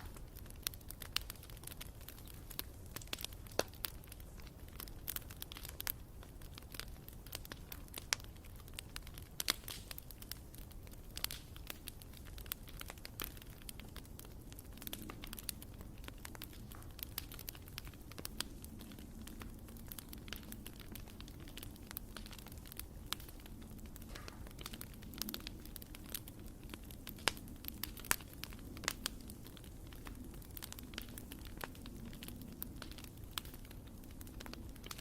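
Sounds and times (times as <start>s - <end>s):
burning wood popping and snapping: 0.0s - 35.0s
low rumble of flames: 0.0s - 35.0s.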